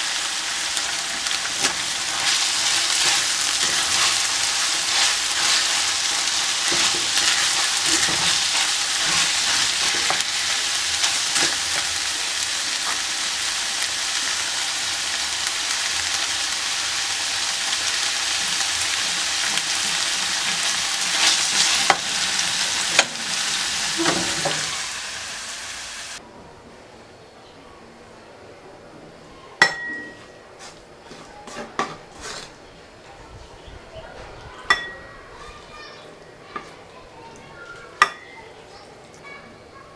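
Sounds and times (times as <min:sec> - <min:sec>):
food sizzling in hot oil: 0:00.0 - 0:26.2.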